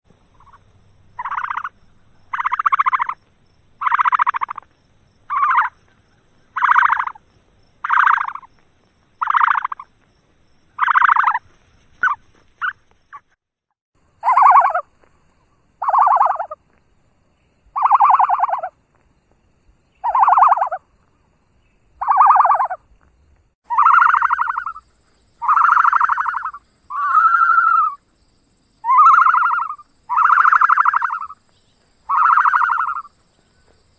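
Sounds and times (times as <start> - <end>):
bird buzzy calls: 0.2 - 8.6, 9.2 - 9.9, 10.7 - 13.4, 14.2 - 14.8, 15.8 - 16.6, 17.8 - 18.7, 25.4 - 28.0, 28.8 - 31.4, 32.1 - 33.8.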